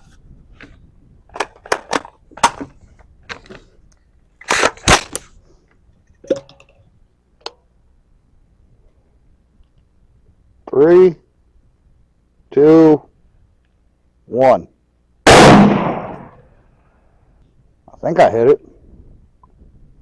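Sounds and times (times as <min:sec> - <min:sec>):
rifle action clicking and clacking: 0:01.3 - 0:03.6, 0:04.4 - 0:05.3.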